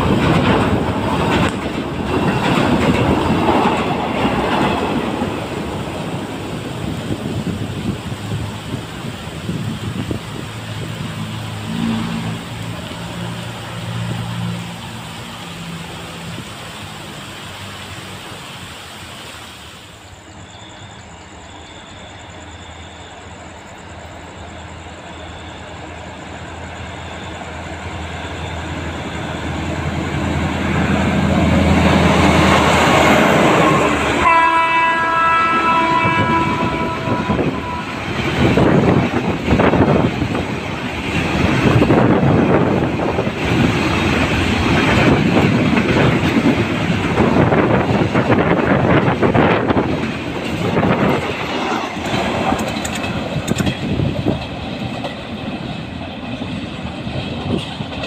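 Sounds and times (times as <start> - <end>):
wheels clacking over rail joints: 0.0 - 16.3, 35.0 - 58.0
freight train rumble: 0.0 - 58.0
train horn: 11.3 - 12.7, 32.1 - 39.0.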